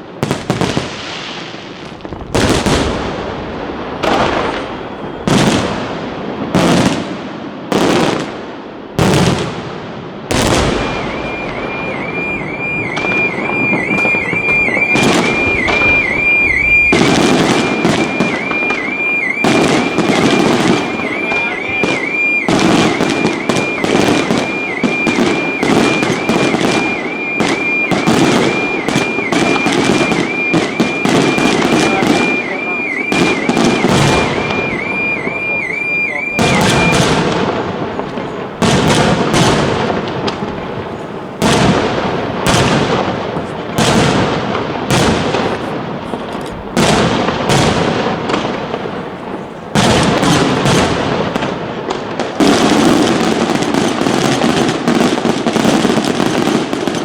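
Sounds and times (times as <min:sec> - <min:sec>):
fireworks bursts and crackling: 0:00.0 - 0:57.0
high warbling tone: 0:10.7 - 0:37.0.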